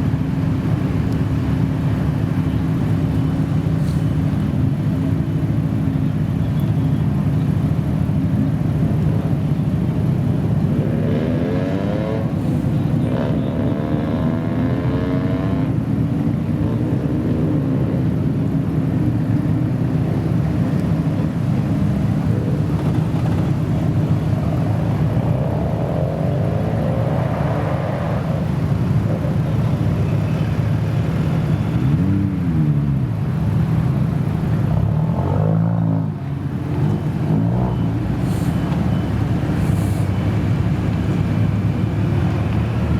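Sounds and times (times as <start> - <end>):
car engine idling: 38.1 - 42.9.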